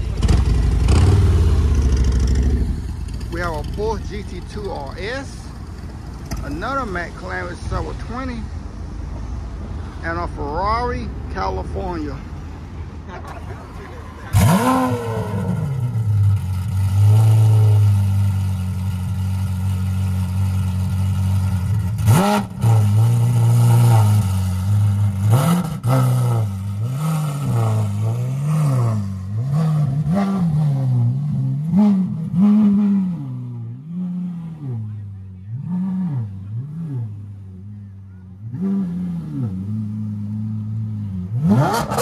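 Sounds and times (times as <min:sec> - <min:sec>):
sports car engine revving: 0:00.1 - 0:04.5, 0:14.2 - 0:42.0.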